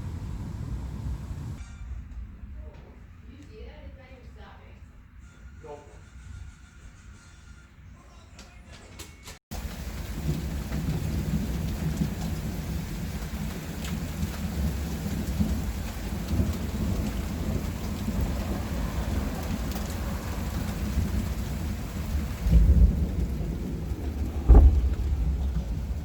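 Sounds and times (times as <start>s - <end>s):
hard rain falling: 0.0s - 1.6s, 9.5s - 26.0s
low rumble of thunder: 0.0s - 1.6s, 9.5s - 26.0s.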